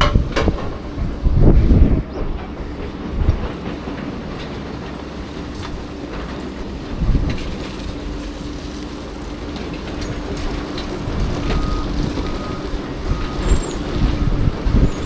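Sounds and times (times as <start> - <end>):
metal clanks and heavy thumps: 0.0 - 7.5
heavy machine rumbling: 0.0 - 15.0.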